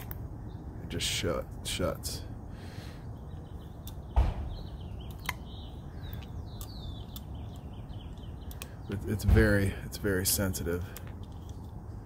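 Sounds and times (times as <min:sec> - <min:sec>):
outdoor background noise: 0:00.0 - 0:12.0
small birds chirping: 0:00.0 - 0:12.0
heavy thump: 0:04.2 - 0:04.6.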